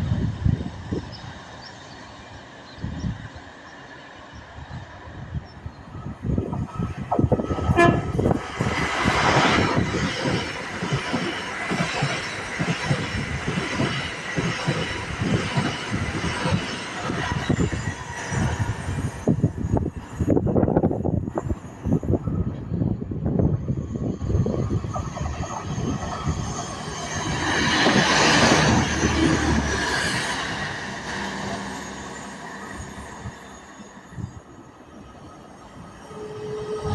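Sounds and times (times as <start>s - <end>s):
train wheels on rails: 0.0s - 36.9s
wind buffeting microphone: 0.0s - 36.9s
train horn toot: 7.6s - 8.3s, 36.1s - 36.9s.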